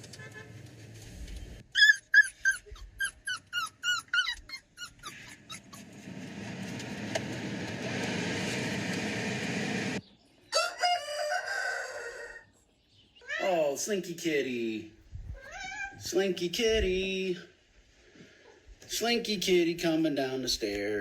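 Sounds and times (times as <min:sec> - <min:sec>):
steady noise: 0:05.8 - 0:10.0, 0:16.0 - 0:18.0, 0:18.8 - 0:21.0.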